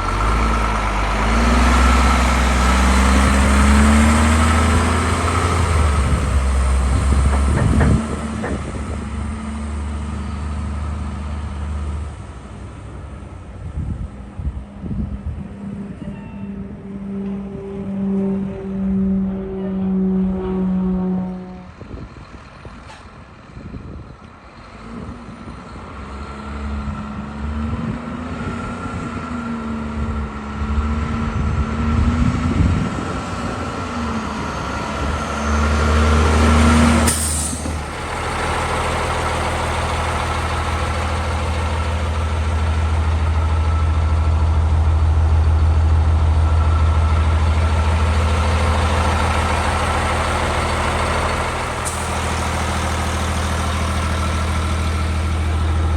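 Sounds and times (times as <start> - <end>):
diesel truck engine running: 0.0 - 55.9
air brake hiss: 37.1 - 37.8.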